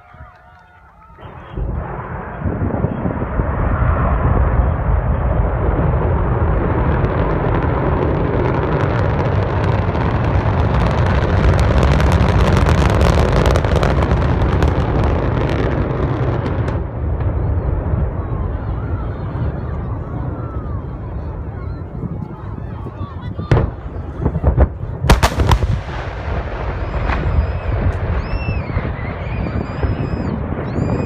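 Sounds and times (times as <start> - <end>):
rocket launch roar: 0.0 - 31.0
dense crackling: 21.2 - 31.0.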